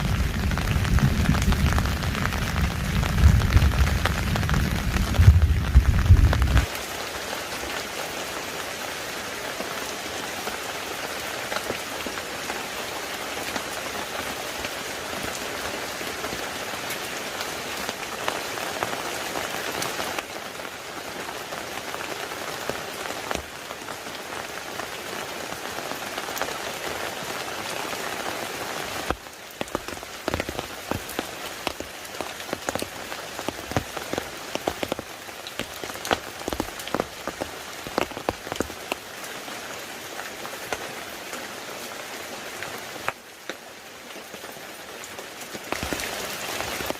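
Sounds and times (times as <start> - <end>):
rain pattering on surfaces: 0.0 - 46.9.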